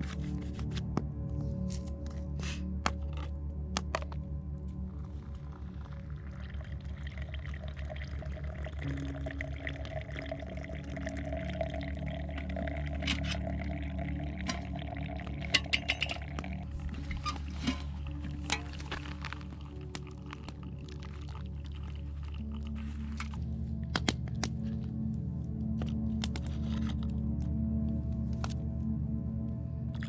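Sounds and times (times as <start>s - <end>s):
liquid being poured: 5.5s - 23.4s.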